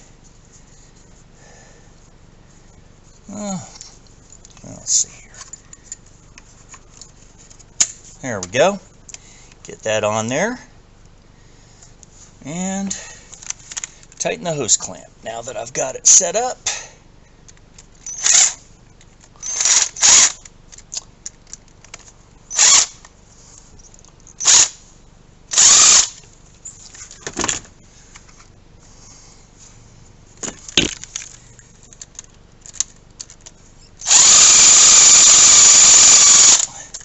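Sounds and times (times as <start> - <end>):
power driver trigger bursts: 18.1 - 18.6, 19.4 - 20.4, 22.5 - 23.0, 24.4 - 24.8, 25.5 - 26.2, 34.0 - 36.8.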